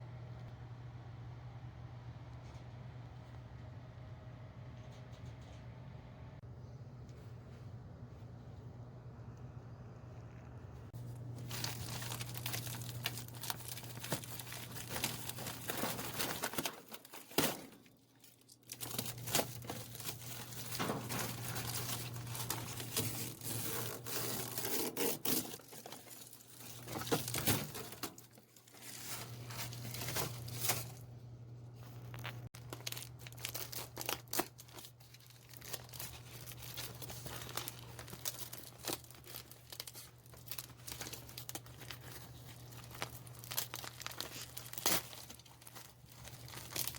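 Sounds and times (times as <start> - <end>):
foil crinkling and tearing: 11.0 - 31.1, 31.8 - 46.9.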